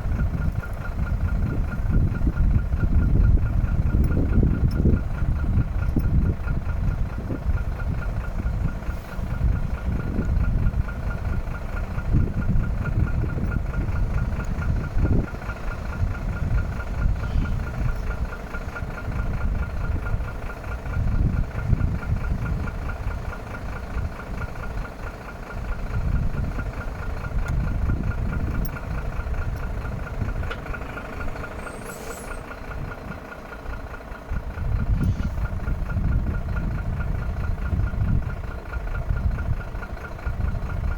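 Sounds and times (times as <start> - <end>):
truck diesel engine idling: 0.0 - 40.9.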